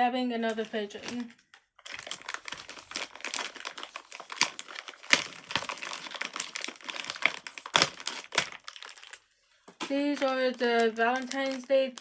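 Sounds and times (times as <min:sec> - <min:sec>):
plastic packaging crinkling: 0:00.4 - 0:12.0.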